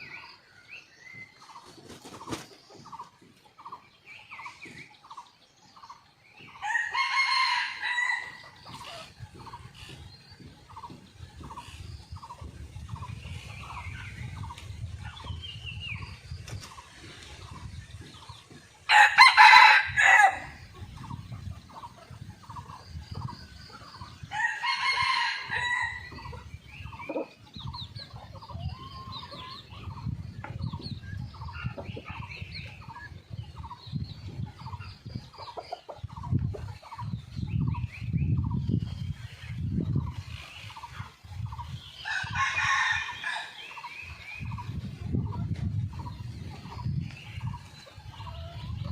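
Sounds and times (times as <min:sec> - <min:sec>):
roosters crowing: 0:06.6 - 0:09.1, 0:18.8 - 0:20.7, 0:24.1 - 0:26.4, 0:42.0 - 0:44.0.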